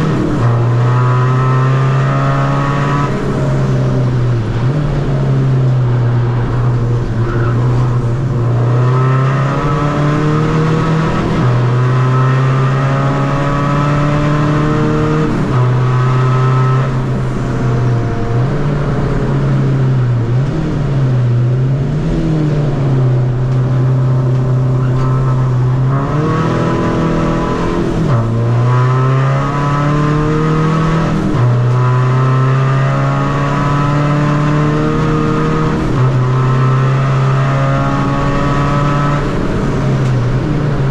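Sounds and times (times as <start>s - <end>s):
diesel car engine revving: 0.0s - 40.9s.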